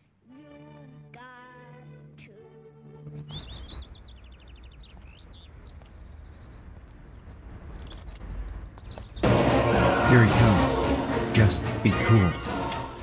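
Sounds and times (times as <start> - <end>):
birds chirping and trilling: 2.9 - 13.0
held music chord: 9.2 - 13.0.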